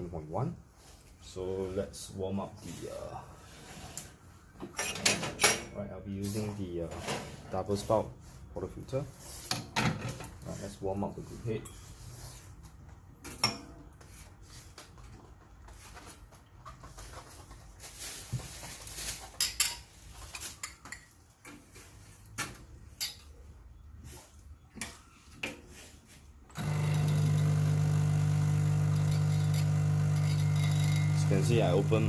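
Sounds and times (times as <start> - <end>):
espresso machine pump humming: 26.5 - 32.0.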